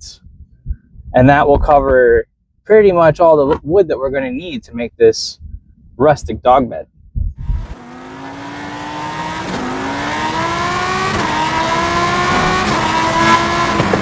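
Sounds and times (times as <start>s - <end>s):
car engine accelerating: 7.4s - 14.0s.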